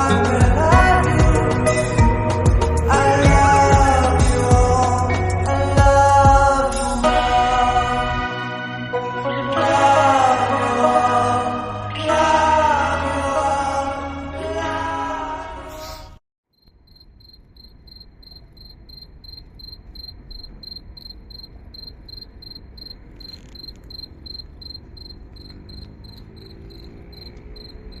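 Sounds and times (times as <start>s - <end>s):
backing music: 0.0s - 15.5s
low outdoor background: 9.6s - 28.0s
insect chirping: 16.5s - 28.0s.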